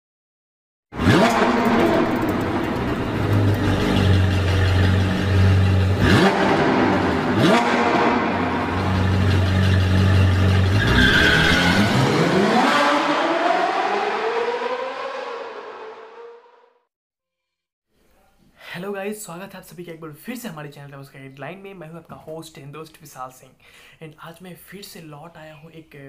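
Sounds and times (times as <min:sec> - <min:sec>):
sports car engine revving: 0:01.0 - 0:16.3.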